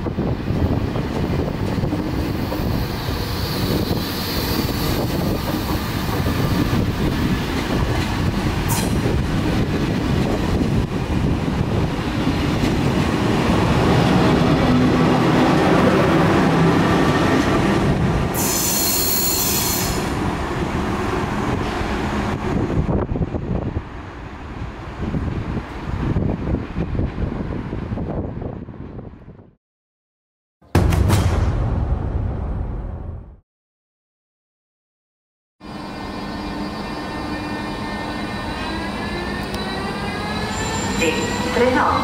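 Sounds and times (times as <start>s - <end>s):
train rumbling on rails: 0.0s - 29.5s, 35.6s - 42.0s
high wheel squeal: 18.4s - 20.1s, 35.7s - 42.0s.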